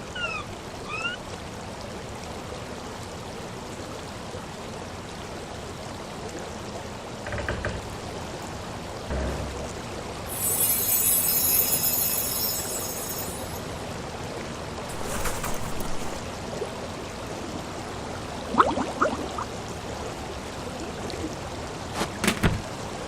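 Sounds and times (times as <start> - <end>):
rushing water: 0.0 - 23.0
whistling glides: 10.3 - 13.7.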